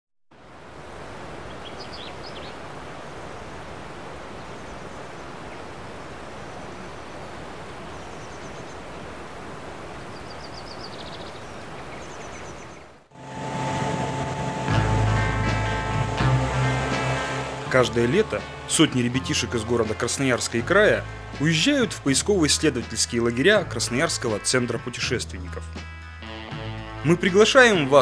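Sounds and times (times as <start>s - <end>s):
songbird chirps: 1.3s - 13.1s
outdoor rushing noise: 13.1s - 22.9s.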